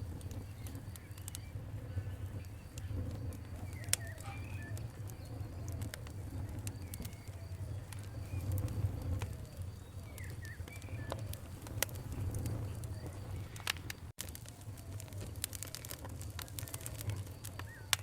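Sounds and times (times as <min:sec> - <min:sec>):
campfire crackling and popping: 0:00.0 - 0:18.0
low rumble of flames: 0:00.0 - 0:18.0
birds calling: 0:00.3 - 0:11.4.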